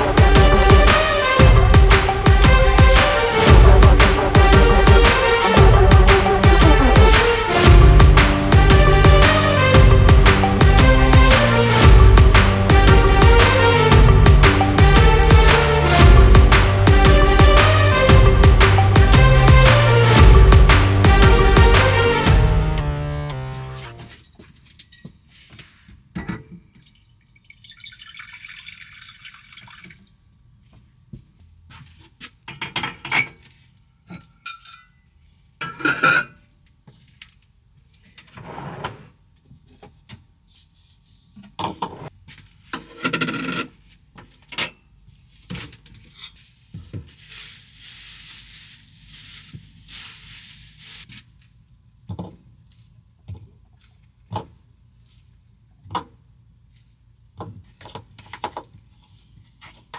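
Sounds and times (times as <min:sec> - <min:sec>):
dishes and utensils clinking: 0:26.2 - 0:26.6, 0:34.2 - 0:35.0
water running: 0:26.8 - 0:30.0.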